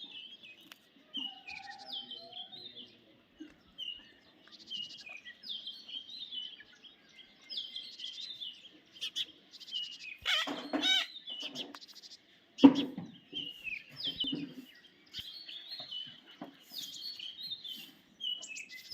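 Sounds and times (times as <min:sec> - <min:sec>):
parrots chirping and twittering: 0:09.0 - 0:18.9
parrots screeching: 0:10.2 - 0:11.2.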